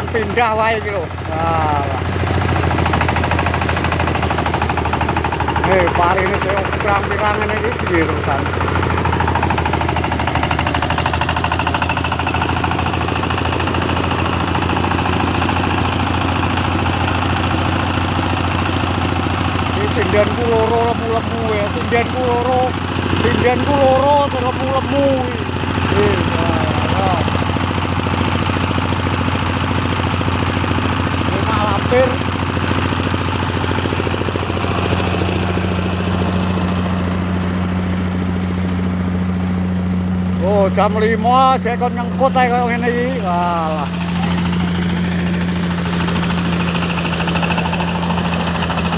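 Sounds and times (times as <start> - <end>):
rice thresher running: 0.0 - 48.9.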